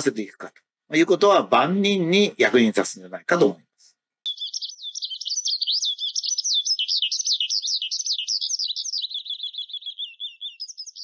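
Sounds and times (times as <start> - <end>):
bird chirps and warbles: 4.2 - 11.0.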